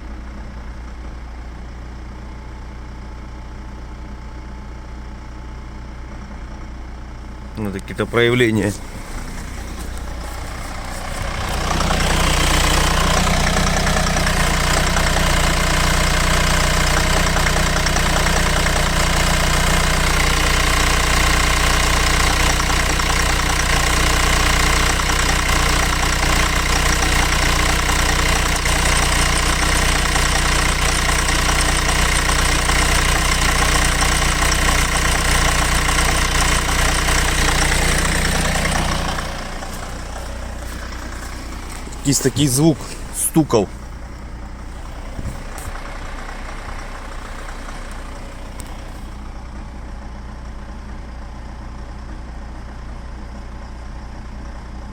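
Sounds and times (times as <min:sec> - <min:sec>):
diesel engine idling: 0:00.0 - 0:54.9
loud engine knock: 0:09.0 - 0:42.0.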